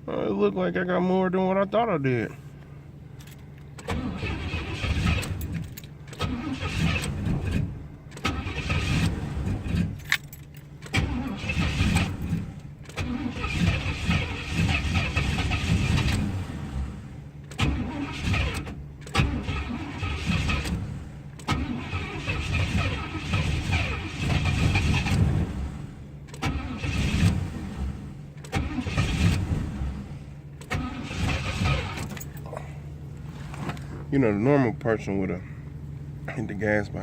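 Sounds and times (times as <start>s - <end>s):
car starter cranking engine: 3.2s - 32.5s.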